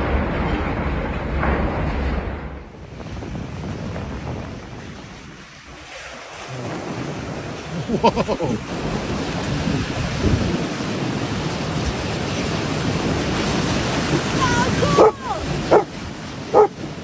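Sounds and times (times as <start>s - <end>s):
wind: 0.0s - 17.0s
heavy rain: 5.9s - 17.0s.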